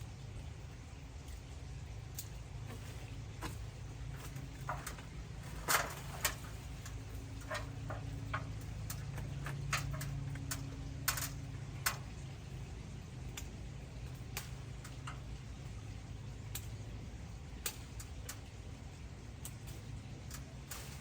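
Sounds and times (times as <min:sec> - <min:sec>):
steady low hum: 0:00.0 - 0:21.0
sharp clicks and snaps: 0:02.1 - 0:02.4, 0:05.7 - 0:12.2, 0:13.3 - 0:15.3, 0:16.5 - 0:16.8, 0:17.6 - 0:18.5, 0:19.4 - 0:20.8.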